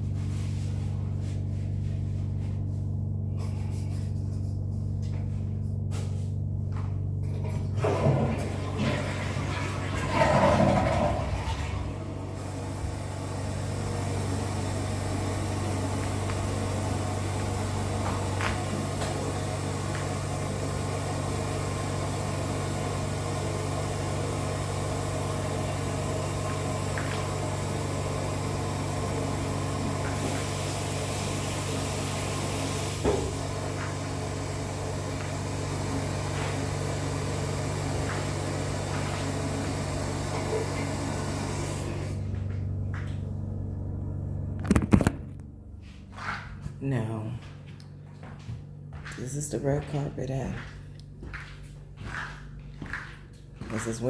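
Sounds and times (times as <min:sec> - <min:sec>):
low droning hum: 0:00.0 - 0:22.7, 0:42.0 - 0:54.0.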